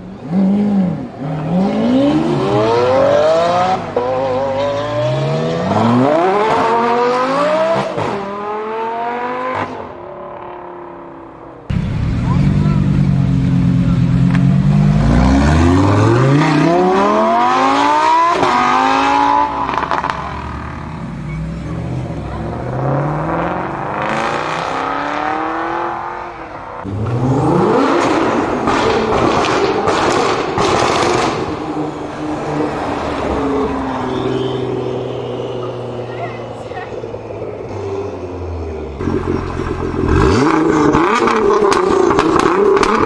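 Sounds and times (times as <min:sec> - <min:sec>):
car engine accelerating hard: 0:11.7 - 0:43.0.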